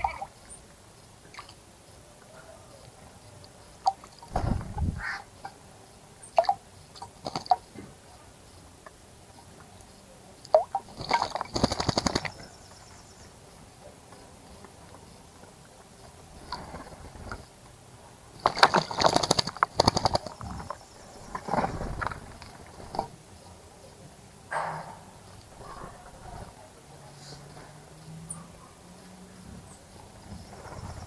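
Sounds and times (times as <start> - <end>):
bird splashing in water: 10.5 - 12.5, 18.4 - 20.7.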